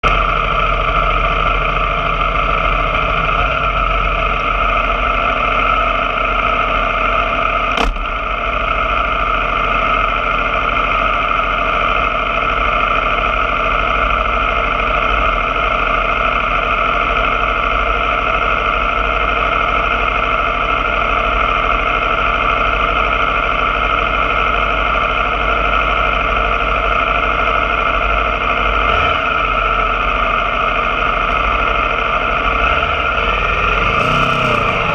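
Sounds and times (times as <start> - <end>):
motorcycle engine running: 0.0 - 34.9
sharp click: 7.8 - 8.1.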